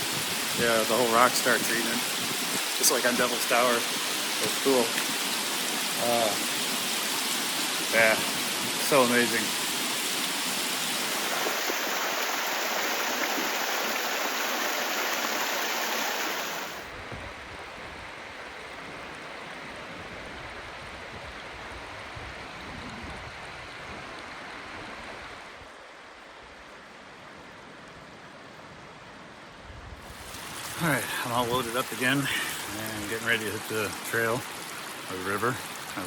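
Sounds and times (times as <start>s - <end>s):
creek water flowing over rock: 0.0s - 16.9s, 30.0s - 36.0s.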